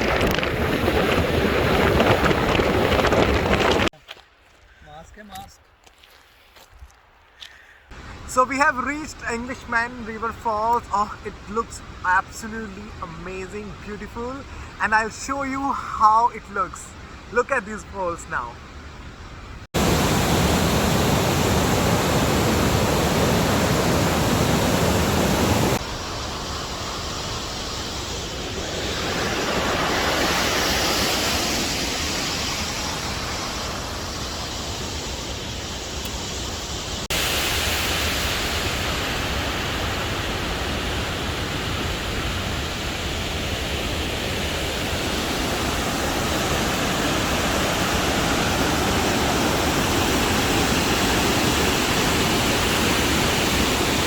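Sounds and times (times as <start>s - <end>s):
waterfall rushing: 19.8s - 36.0s, 36.8s - 54.0s.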